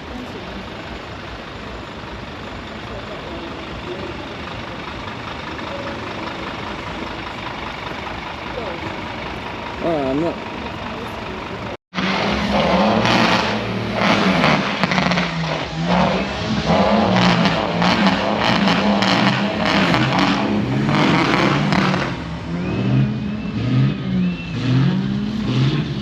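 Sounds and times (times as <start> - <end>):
diesel lorry engines revving: 0.0 - 26.0
short rising whistles: 22.6 - 25.1.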